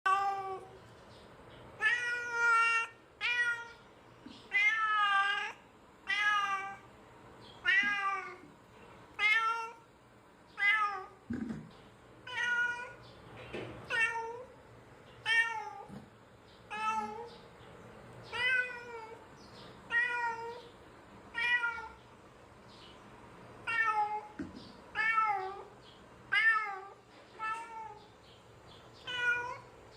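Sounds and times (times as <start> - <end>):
cat meowing: 1.8 - 3.8, 4.5 - 6.9, 7.6 - 8.5, 10.6 - 11.5, 12.2 - 13.0, 15.2 - 16.0, 18.3 - 19.2, 19.9 - 20.7, 21.3 - 22.0, 29.0 - 29.7.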